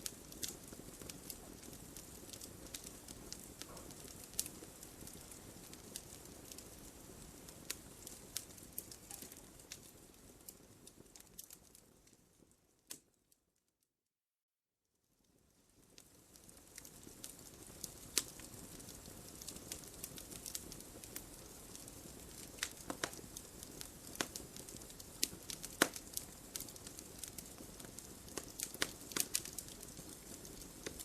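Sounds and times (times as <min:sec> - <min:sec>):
wood fire crackling and popping: 0:00.0 - 0:13.2, 0:15.3 - 0:31.0.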